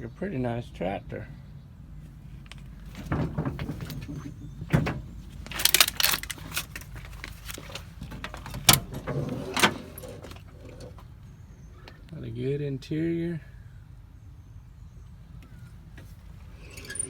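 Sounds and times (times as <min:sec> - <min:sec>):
metal door clunks and rattles: 0:02.1 - 0:11.1.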